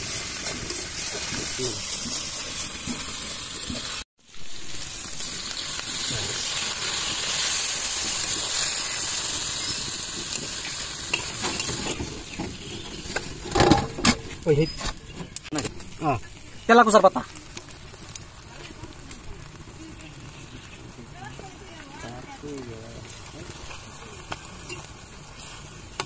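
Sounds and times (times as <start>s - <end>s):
spatula stirring in a wok: 0.0s - 4.0s, 5.2s - 14.3s
curry sizzling in a wok: 0.0s - 26.0s.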